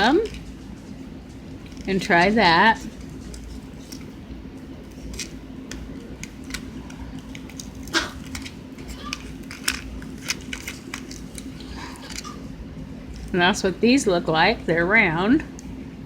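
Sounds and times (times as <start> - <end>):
wrapper crinkling: 1.4 - 12.5.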